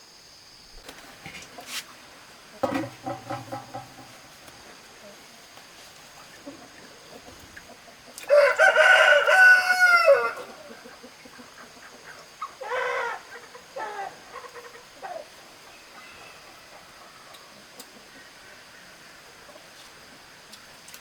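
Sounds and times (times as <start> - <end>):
chickens calling: 1.4 - 19.8
rooster crowing: 8.3 - 10.8, 15.9 - 17.6.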